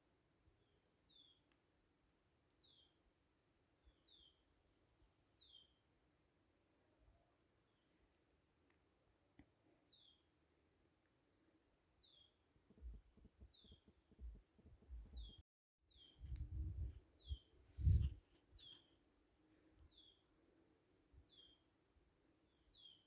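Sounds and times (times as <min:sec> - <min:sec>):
low thumps: 0:16.2 - 0:18.2.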